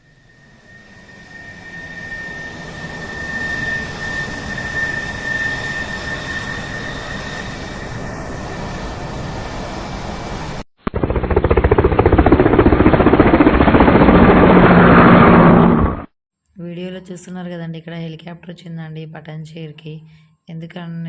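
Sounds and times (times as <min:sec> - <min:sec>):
high-pitched whine: 0:00.0 - 0:11.4
helicopter engine and rotor: 0:00.0 - 0:16.1.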